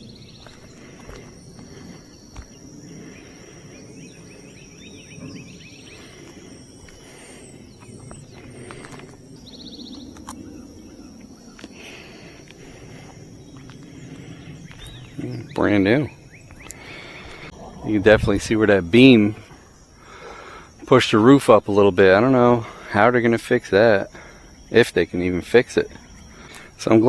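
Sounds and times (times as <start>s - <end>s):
low rumble: 0.0s - 20.0s
birds chirping: 0.0s - 27.0s
high insect whine: 0.0s - 27.0s.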